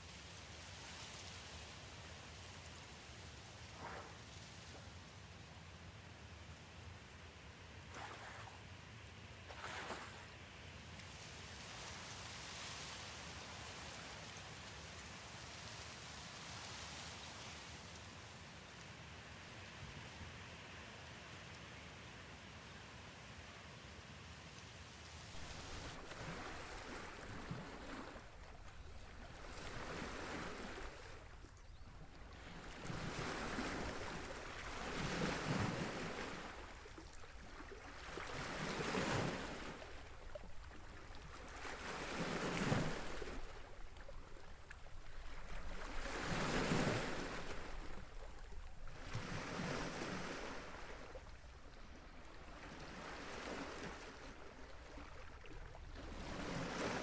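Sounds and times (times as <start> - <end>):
waves washing on shore: 25.2 - 57.0.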